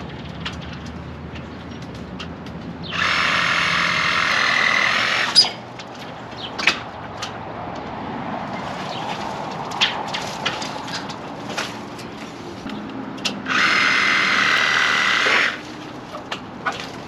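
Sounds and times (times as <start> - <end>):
power tool running: 2.9 - 5.6, 13.4 - 15.6
sharp knocks and cracks: 5.7 - 7.9, 8.9 - 13.4.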